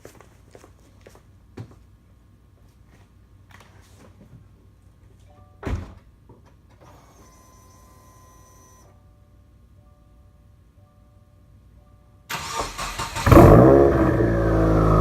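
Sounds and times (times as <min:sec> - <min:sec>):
ignition whir: 0:12.3 - 0:15.0.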